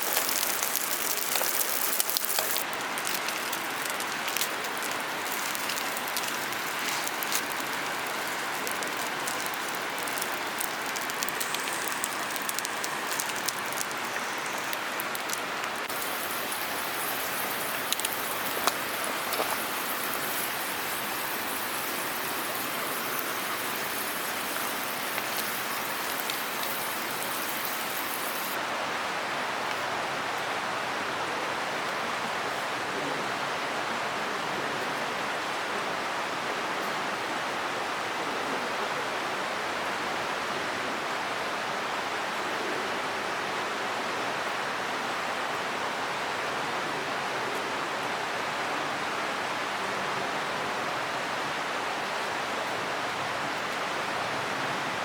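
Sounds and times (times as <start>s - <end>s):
bright hiss with fine pattering: 0.0s - 28.6s
water rushing: 0.0s - 29.4s.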